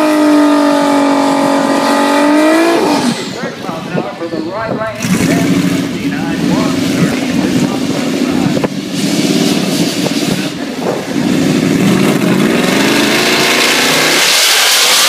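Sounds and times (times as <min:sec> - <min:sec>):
car engine revving loudly: 0:00.0 - 0:04.0, 0:04.9 - 0:15.0
loud hissing rush: 0:05.0 - 0:15.0.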